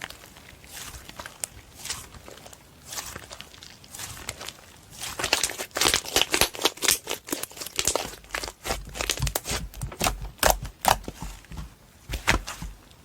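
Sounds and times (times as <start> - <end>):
slime clicking and popping: 5.2 - 11.2.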